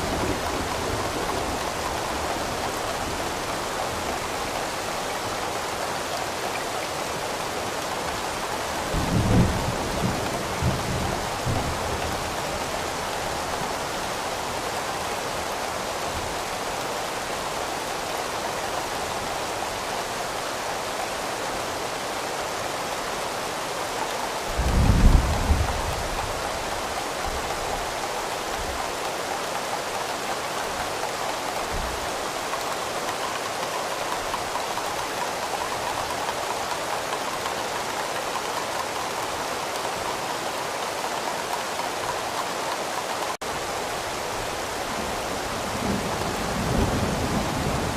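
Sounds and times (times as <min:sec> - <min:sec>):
steady rain falling: 0:00.0 - 0:47.9
low rolls of thunder: 0:24.5 - 0:26.1, 0:45.6 - 0:47.9.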